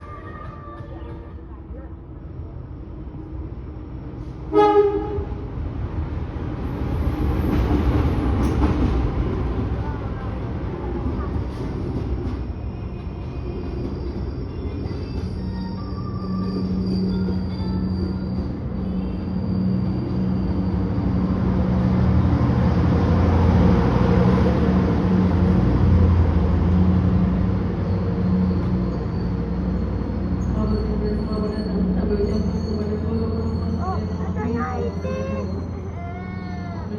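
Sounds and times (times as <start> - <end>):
train rumbling: 0.0 - 36.9
train horn blast: 4.5 - 5.4.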